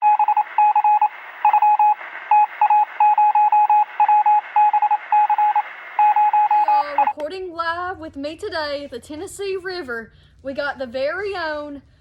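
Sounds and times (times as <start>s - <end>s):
rapid electronic beeps: 0.0s - 7.1s.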